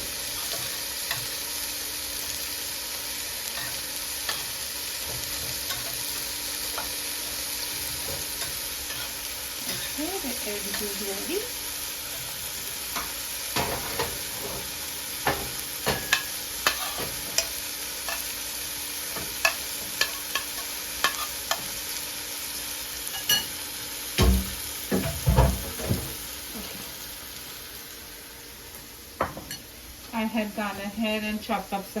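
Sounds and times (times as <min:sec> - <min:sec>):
food sizzling in frying pan: 0:00.0 - 0:32.0
utensil scraping pan: 0:07.8 - 0:11.0.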